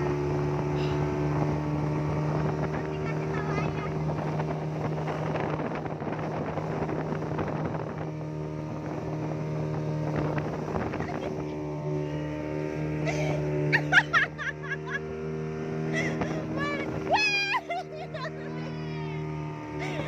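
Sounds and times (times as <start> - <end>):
wind buffeting microphone: 0.0 - 13.7
motorboat engine running: 0.0 - 20.0
rushing water: 0.0 - 20.0.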